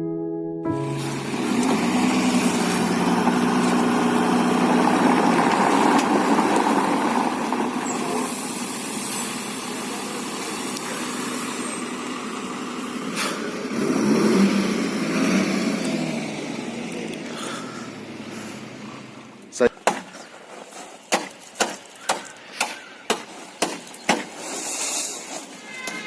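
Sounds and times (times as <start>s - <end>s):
truck engine running: 0.7s - 21.4s.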